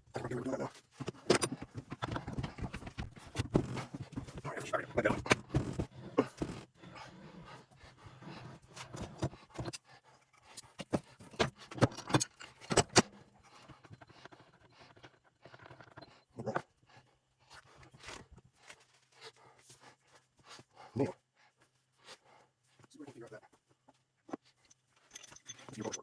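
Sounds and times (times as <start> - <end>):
metal parts and tools clinking: 10.5 - 13.1, 24.7 - 26.0.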